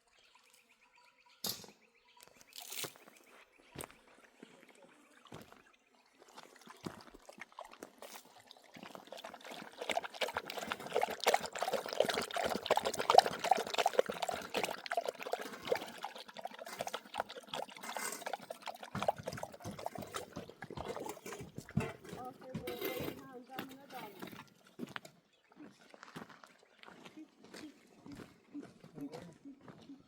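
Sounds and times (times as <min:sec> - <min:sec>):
water pouring and splashing: 0:02.4 - 0:03.1, 0:04.5 - 0:25.1.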